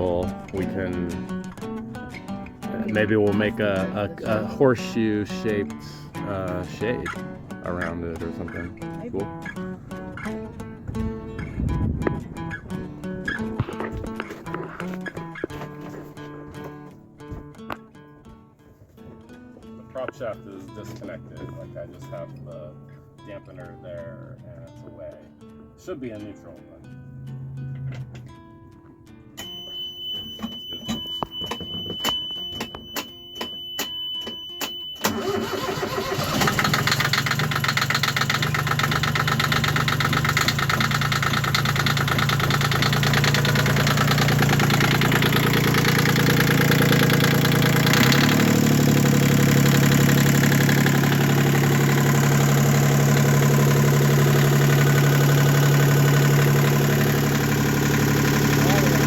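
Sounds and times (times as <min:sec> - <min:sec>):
steady high tone: 0:29.4 - 0:35.5
boat engine idling: 0:35.0 - 0:59.0
engine cranking knocks: 0:35.1 - 0:57.4.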